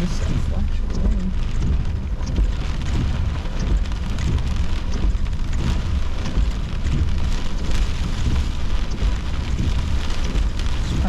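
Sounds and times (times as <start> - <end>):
heavy rain on car roof: 0.0 - 11.0
low rumble: 0.0 - 11.0.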